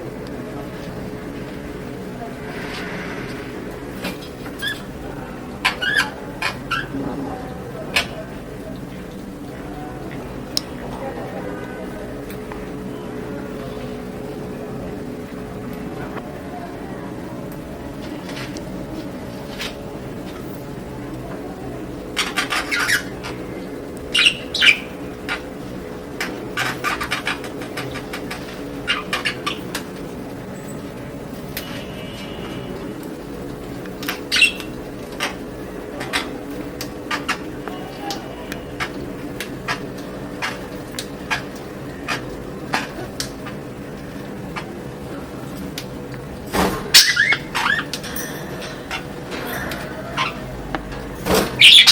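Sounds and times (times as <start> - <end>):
steady low hum: 0.0 - 51.7
budgies pecking in cage: 0.2 - 7.0, 21.6 - 51.9
budgerigars chattering: 5.6 - 7.0, 22.2 - 23.4, 24.1 - 25.4, 28.8 - 29.7, 34.1 - 35.3, 46.9 - 47.9, 51.6 - 51.9.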